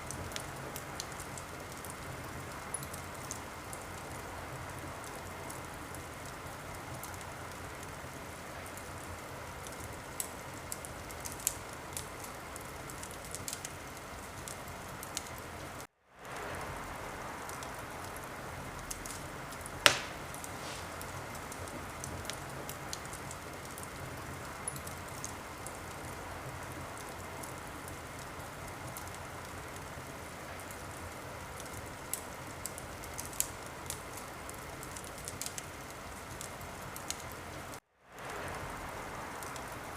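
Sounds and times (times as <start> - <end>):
wood fire crackling: 0.0 - 39.9
loud sharp fire pop: 19.9 - 21.0.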